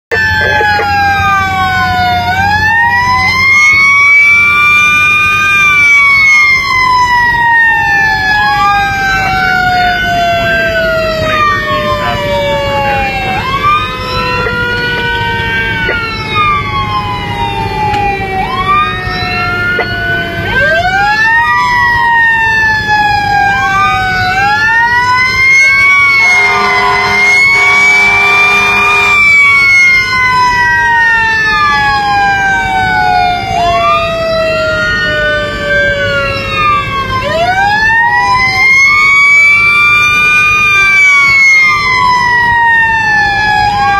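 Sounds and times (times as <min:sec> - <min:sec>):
fire engine sirens wailing: 0:00.0 - 0:43.9
engine and road rumble: 0:00.1 - 0:43.9
multi-tone air horn blast: 0:26.2 - 0:29.4.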